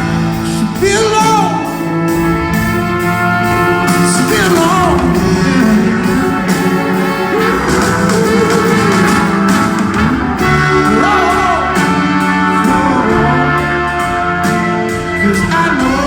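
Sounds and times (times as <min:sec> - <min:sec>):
live band playing soul: 0:00.0 - 0:16.0.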